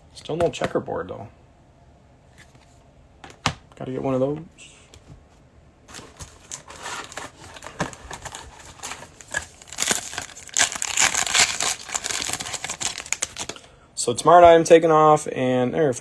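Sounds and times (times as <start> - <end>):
plastic wrapper crinkling: 5.9 - 13.7.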